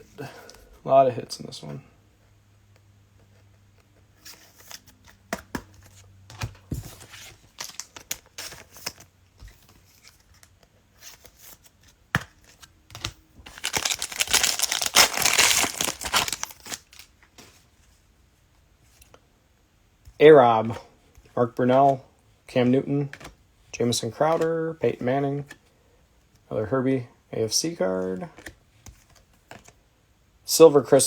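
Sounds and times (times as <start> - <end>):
cellophane wrapper crinkling and tearing: 13.5 - 17.1.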